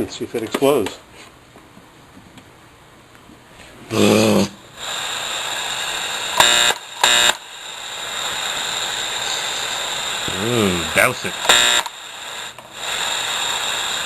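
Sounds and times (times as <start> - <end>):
radio static hiss: 3.8 - 14.0
radio buzzy bursts: 4.8 - 14.0.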